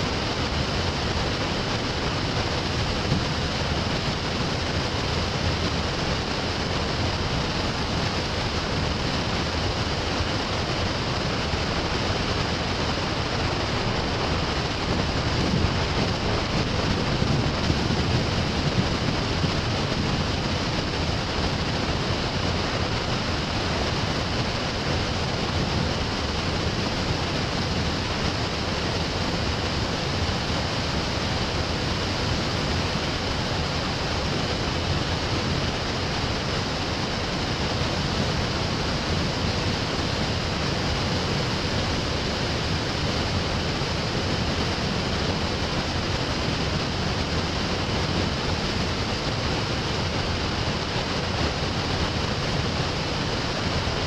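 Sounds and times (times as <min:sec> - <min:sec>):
steady rushing noise: 0:00.0 - 0:54.0.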